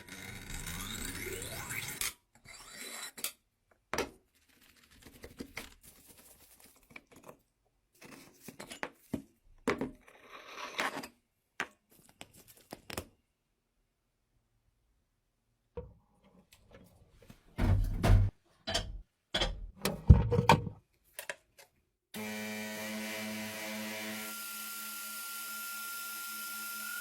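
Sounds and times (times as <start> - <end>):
metal knocks and clinks: 18.7 - 19.7.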